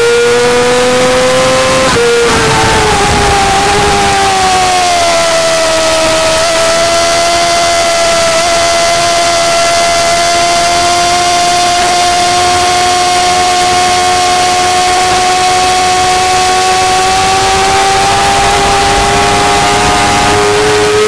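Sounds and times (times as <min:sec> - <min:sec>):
motorcycle engine accelerating: 0:00.0 - 0:21.0
wind rushing: 0:01.5 - 0:04.8.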